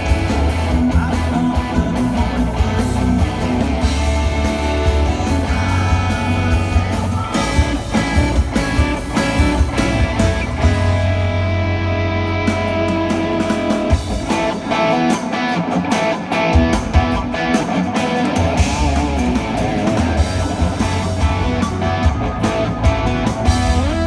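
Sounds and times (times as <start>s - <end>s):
bass line: 0.0s - 14.3s, 18.5s - 24.0s
electric guitar: 0.0s - 24.0s
rock band playing live: 0.0s - 24.0s.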